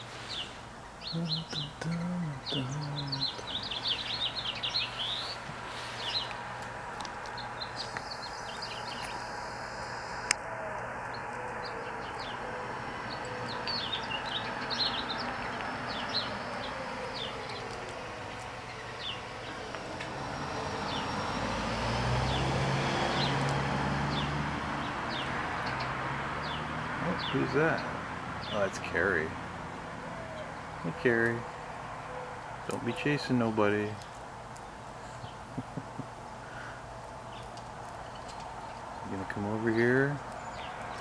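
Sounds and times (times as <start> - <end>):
outdoor background noise: 0.0 - 41.0
small birds chirping: 0.0 - 41.0
low engine hum: 1.0 - 33.0.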